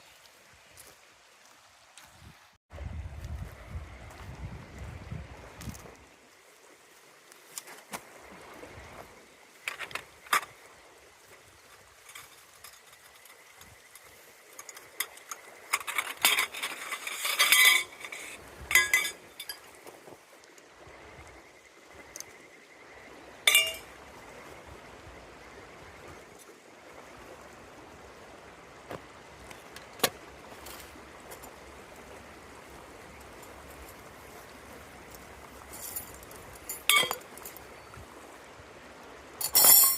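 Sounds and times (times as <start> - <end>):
river water running: 0.0 - 39.9
metal cookware clinking: 15.8 - 19.6, 23.5 - 23.8, 36.7 - 37.5, 39.4 - 39.9.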